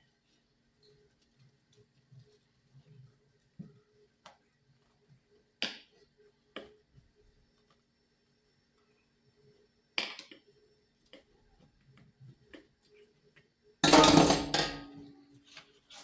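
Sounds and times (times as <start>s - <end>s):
kitchen containers knocking: 13.8s - 15.2s.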